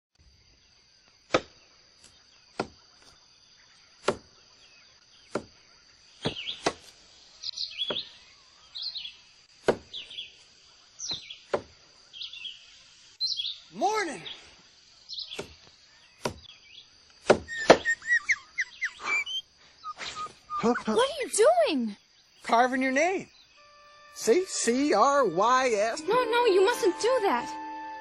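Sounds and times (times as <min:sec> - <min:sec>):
high insect drone: 0:00.2 - 0:28.0
short bird chirps: 0:17.5 - 0:21.0.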